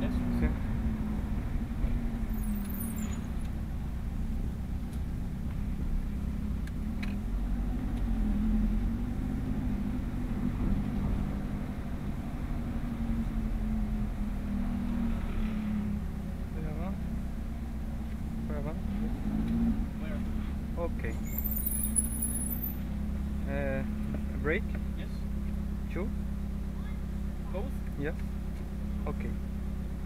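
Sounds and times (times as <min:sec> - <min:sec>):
car engine running: 0:00.0 - 0:14.5, 0:15.2 - 0:30.0
road rumble: 0:00.0 - 0:30.0.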